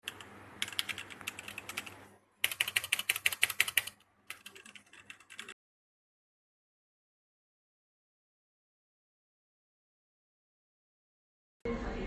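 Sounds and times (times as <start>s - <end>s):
mechanical keyboard key clicks: 0.0s - 5.5s.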